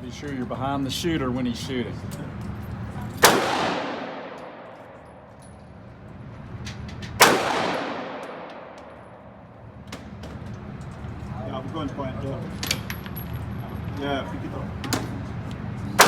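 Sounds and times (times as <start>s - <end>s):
revolver shots echoing: 3.2s - 5.4s, 7.2s - 10.1s.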